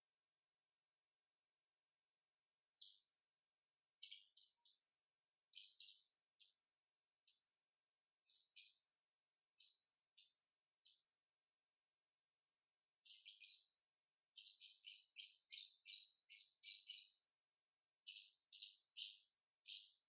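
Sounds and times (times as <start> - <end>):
small bird chirping: 2.7 - 3.2, 3.9 - 11.2, 12.4 - 17.3, 18.0 - 20.0.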